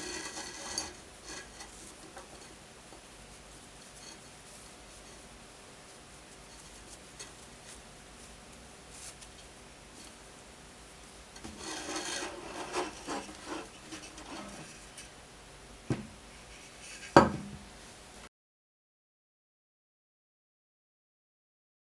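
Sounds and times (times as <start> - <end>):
wood being scraped by hand: 11.4 - 15.0
wooden knock: 15.9 - 16.2, 17.2 - 17.6.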